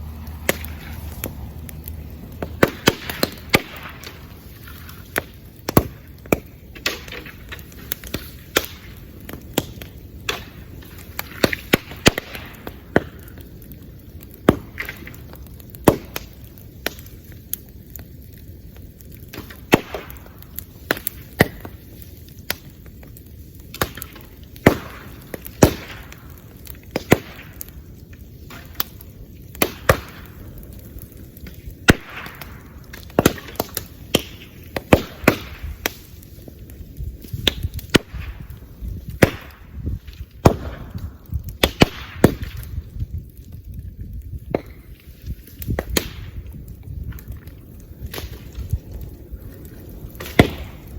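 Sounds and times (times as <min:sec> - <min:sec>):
bamboo popping: 0:00.0 - 0:13.4
fire crackling: 0:00.0 - 0:50.9.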